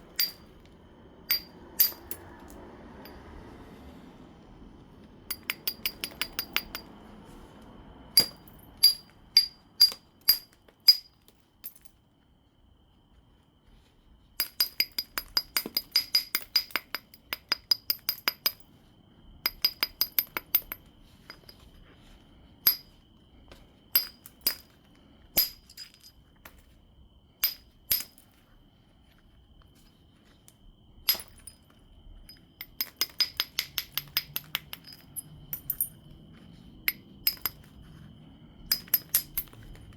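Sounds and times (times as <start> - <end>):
stone tapped with knapping tool: 1.3 - 2.2, 5.3 - 6.9, 8.2 - 11.9, 14.4 - 18.6, 19.5 - 21.6, 22.7 - 22.9, 25.4 - 25.8, 32.3 - 35.9, 36.9 - 37.7, 38.7 - 39.7.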